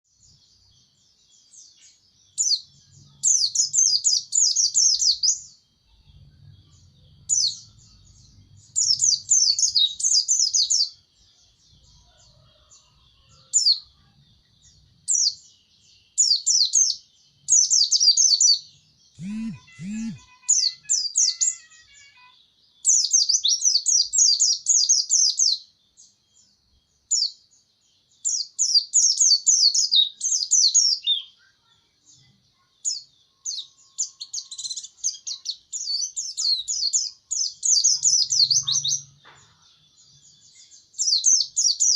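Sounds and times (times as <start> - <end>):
short low sounds: 19.2 - 20.3
bird twittering: 19.2 - 22.0.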